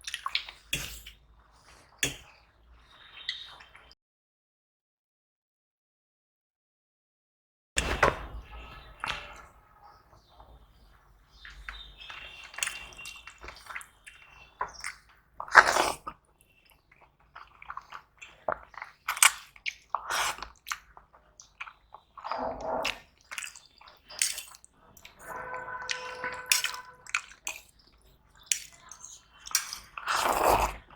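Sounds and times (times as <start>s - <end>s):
person chewing food: 11.3s - 25.2s, 25.9s - 30.9s.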